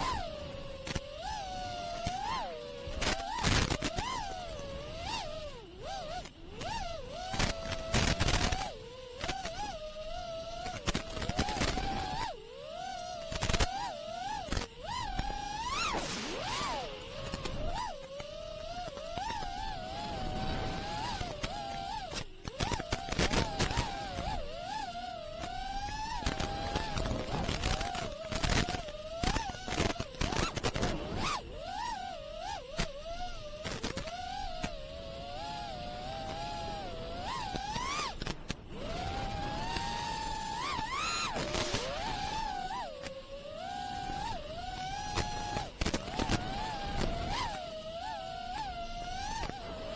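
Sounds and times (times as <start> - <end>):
drone motors and propellers whining: 0.0 - 49.9
brief rushes of noise: 15.7 - 18.0.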